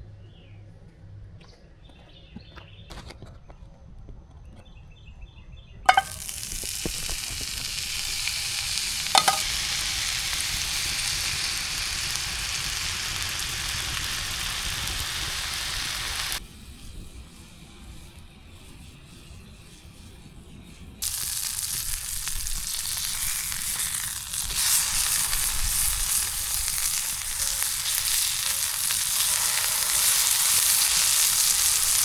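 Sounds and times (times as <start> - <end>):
sharp clack: 5.9 - 6.7, 9.1 - 9.5
food sizzling in frying pan: 5.9 - 17.2, 21.0 - 32.0.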